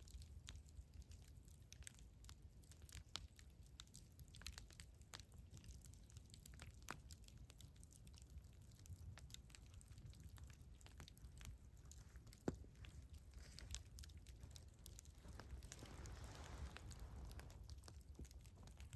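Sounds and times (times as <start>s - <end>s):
campfire crackling: 0.0s - 18.9s.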